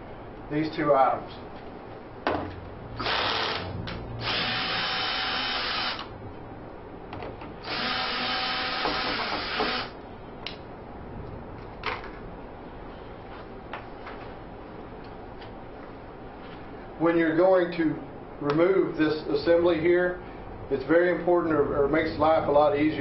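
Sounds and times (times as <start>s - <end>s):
power drill running: 3.0s - 6.1s, 7.6s - 10.0s.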